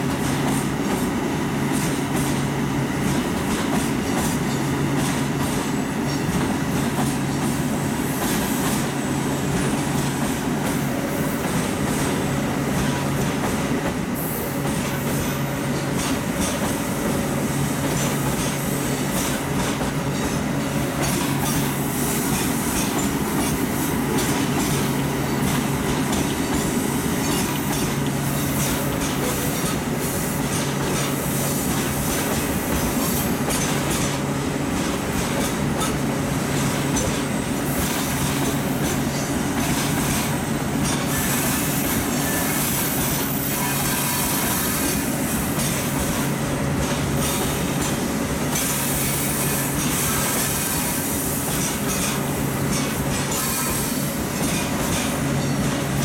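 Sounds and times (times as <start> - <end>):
wheel clatter over rail joints: 17.8 - 56.0.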